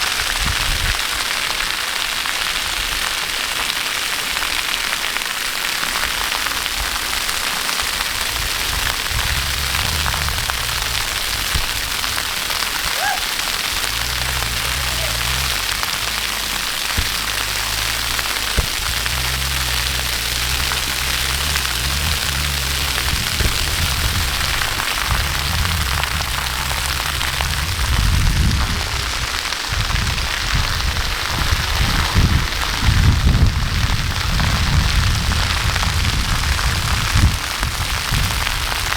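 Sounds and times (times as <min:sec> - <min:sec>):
low rumbling: 0:07.2 - 0:38.8
waterfall rushing: 0:08.3 - 0:28.2.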